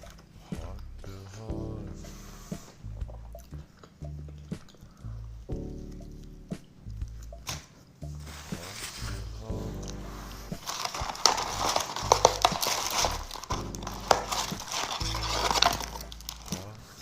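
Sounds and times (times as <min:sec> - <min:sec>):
background music with bass line: 0:00.0 - 0:17.0
chewing and crunching food: 0:03.0 - 0:06.3, 0:09.8 - 0:17.0.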